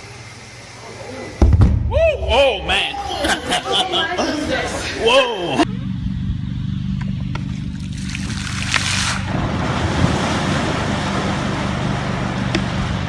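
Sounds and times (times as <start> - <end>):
engine running: 5.3 - 13.0.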